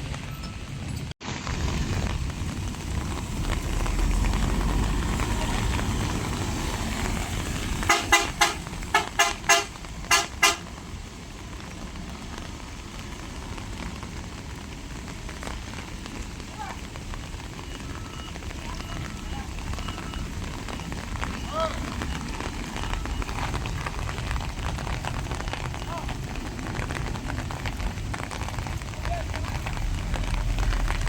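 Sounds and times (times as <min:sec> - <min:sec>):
rain: 0:00.0 - 0:31.0
vehicle horn toots: 0:07.8 - 0:10.7.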